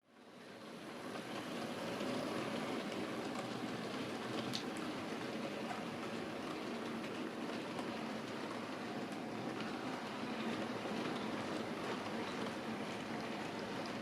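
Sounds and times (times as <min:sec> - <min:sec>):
model train rolling on track: 0:00.2 - 0:14.0
faint clicks: 0:04.4 - 0:04.7.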